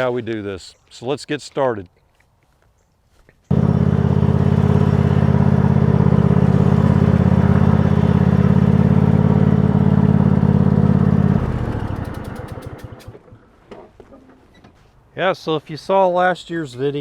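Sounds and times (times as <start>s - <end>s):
motor running and winding down: 3.5s - 13.1s.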